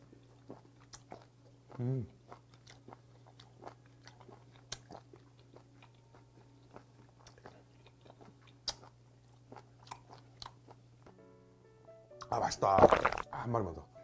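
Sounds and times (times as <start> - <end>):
person chewing with wet clicks: 0.0 - 10.8.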